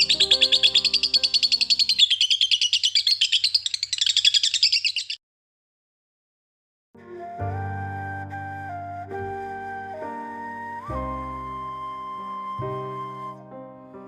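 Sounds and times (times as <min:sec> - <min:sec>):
soft music: 0:00.0 - 0:02.0, 0:07.0 - 0:14.0
bird chirping: 0:00.0 - 0:05.2.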